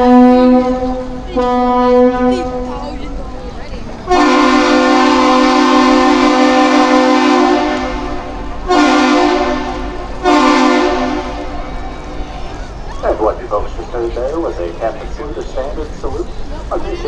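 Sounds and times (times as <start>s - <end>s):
ship horn blasts: 0.0s - 12.2s.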